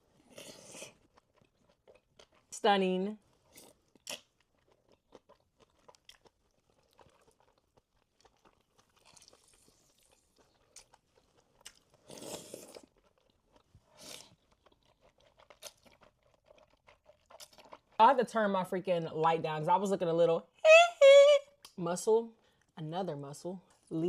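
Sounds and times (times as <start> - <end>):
chewing: 0.2 - 2.5, 3.3 - 18.0.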